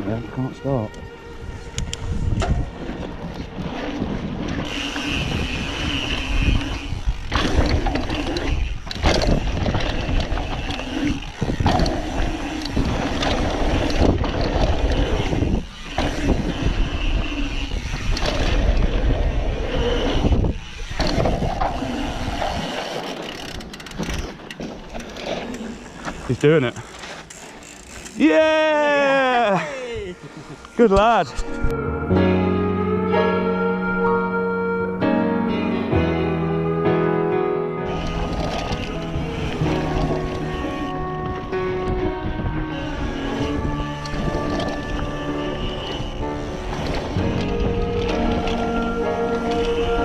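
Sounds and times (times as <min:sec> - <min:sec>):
wind rushing over microphone: 0:00.0 - 0:23.0, 0:37.9 - 0:50.0
tyres rolling on dirt trail: 0:02.4 - 0:31.3, 0:37.8 - 0:50.0.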